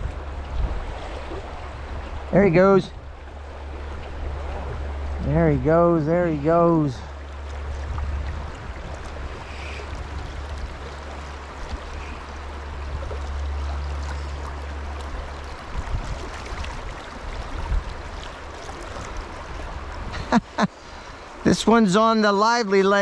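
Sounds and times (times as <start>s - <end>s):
low rumble: 0.0s - 18.2s
creek water running: 0.0s - 23.0s.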